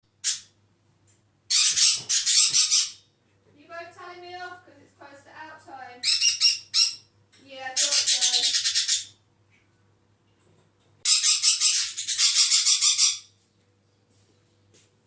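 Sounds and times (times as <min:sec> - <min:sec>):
parrot screeching: 0:01.5 - 0:03.0, 0:06.0 - 0:07.1, 0:07.8 - 0:09.2, 0:11.0 - 0:13.3.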